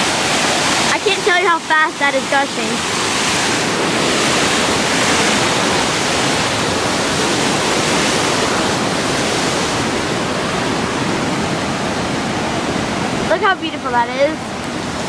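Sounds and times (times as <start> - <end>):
water gushing over rocks: 0.0 - 15.0.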